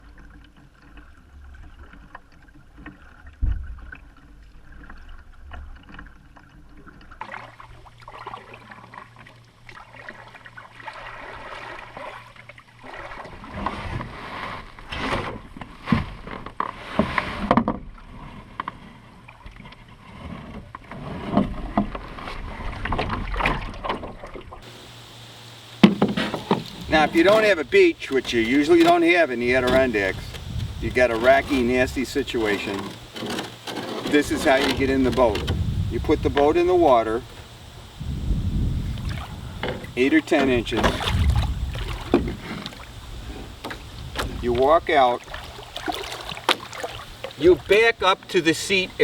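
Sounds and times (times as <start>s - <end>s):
paddle strokes splashing water: 0.0s - 37.6s, 38.9s - 49.0s
knocks against canoe hull: 25.8s - 27.6s, 40.8s - 44.7s.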